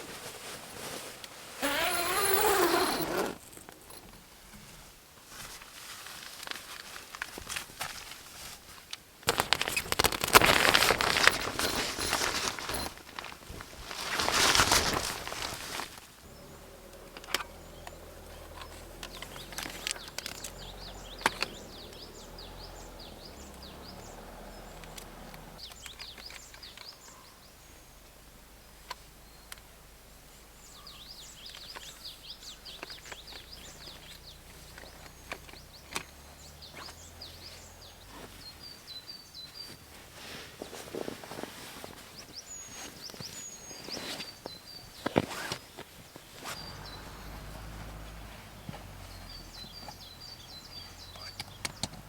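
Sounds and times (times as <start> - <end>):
songbirds chirping: 0.2 - 5.0, 8.7 - 52.0
knocks and clicks from gear: 16.3 - 27.0, 32.7 - 37.1, 46.4 - 52.0.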